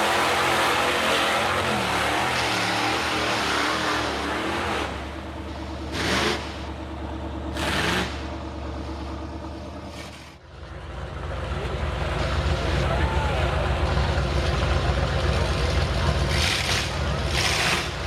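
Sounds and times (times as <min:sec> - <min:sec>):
engine revving hard: 0:00.0 - 0:06.8, 0:07.5 - 0:08.4, 0:16.0 - 0:18.0.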